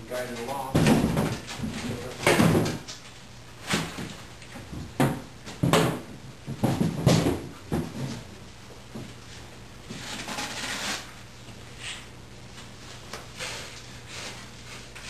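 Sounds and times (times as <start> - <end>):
knocks and bumps on crate: 0.6 - 2.9, 3.6 - 8.3
rubbing scraping noise: 9.9 - 11.2.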